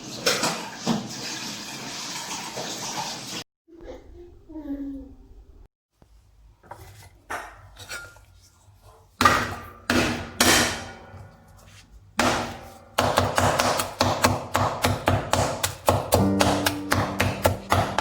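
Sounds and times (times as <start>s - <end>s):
knife chopping on cutting board: 12.2s - 18.0s.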